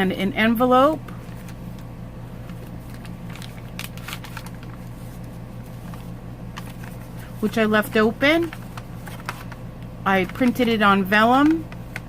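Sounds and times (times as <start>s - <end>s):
low electrical hum: 0.0s - 12.0s
paper pages rustling: 1.1s - 7.6s, 8.3s - 9.6s.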